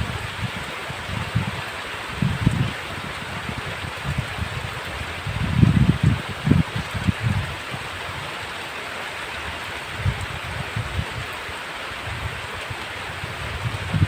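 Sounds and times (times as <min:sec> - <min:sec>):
low gusty rumbles: 0:00.0 - 0:07.9, 0:13.1 - 0:14.0
heavy rain hissing: 0:00.0 - 0:14.0.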